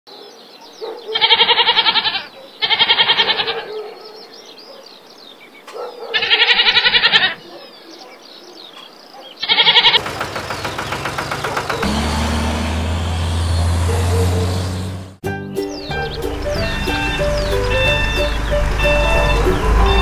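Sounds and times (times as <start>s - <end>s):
goat bleating: 1.1s - 3.7s, 6.1s - 7.4s, 9.4s - 10.0s
vehicle engine running: 10.0s - 15.2s, 15.8s - 20.0s.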